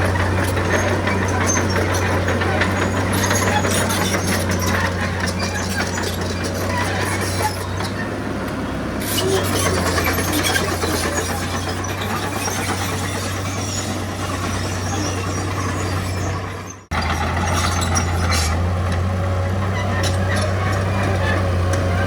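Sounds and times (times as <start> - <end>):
diesel machinery engine hum: 0.0 - 22.0.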